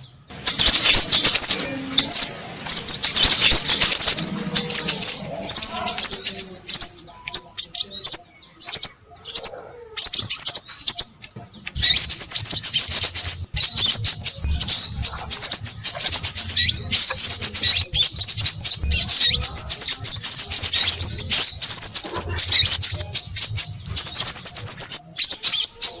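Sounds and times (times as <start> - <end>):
birds chirping rapidly: 0.0 - 26.0.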